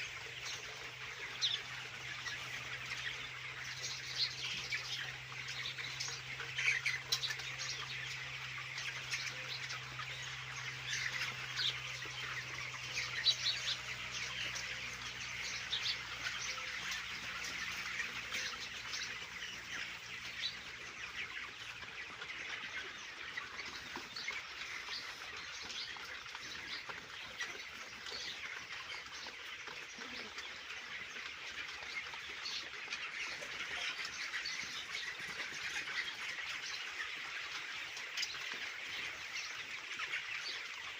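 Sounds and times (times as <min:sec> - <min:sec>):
chickens cheeping and chirping: 0:00.0 - 0:40.9.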